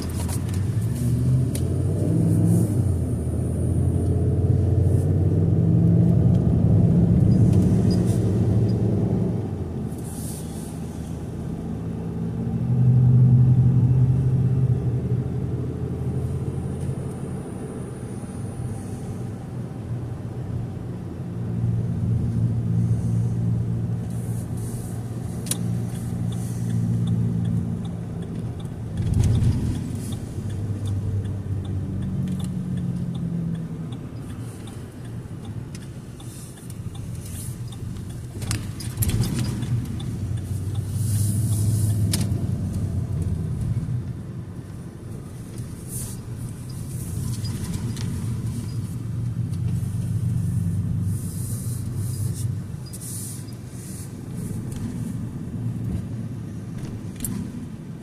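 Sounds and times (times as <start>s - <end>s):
car engine and road hum: 0.0s - 58.0s
faint regular ticking: 30.0s - 38.6s, 39.6s - 41.7s.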